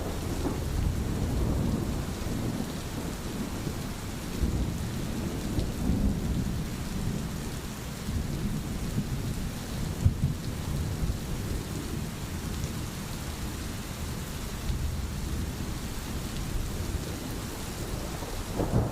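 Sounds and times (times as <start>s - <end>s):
thunder rumbling: 0.0s - 7.4s, 16.6s - 18.9s
steady rain: 0.0s - 18.9s.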